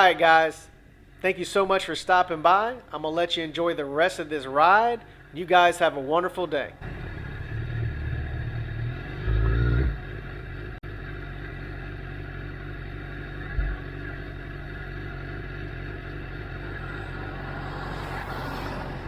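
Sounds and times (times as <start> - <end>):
low rumble: 6.8 - 19.0
motorcycle engine running: 6.8 - 19.0.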